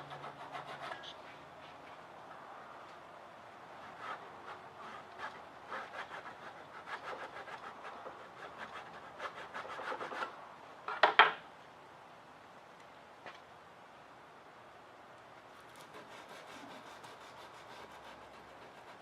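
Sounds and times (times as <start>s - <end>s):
sandpaper rubbing on wood: 15.8s - 19.0s.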